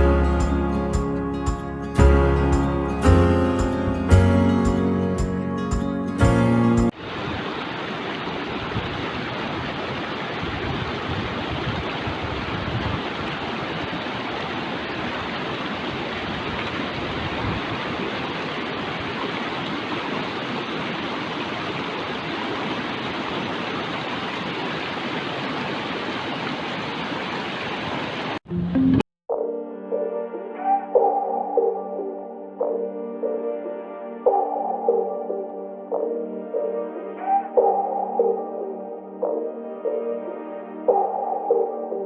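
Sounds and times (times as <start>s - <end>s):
mountain stream rushing: 6.9s - 28.4s.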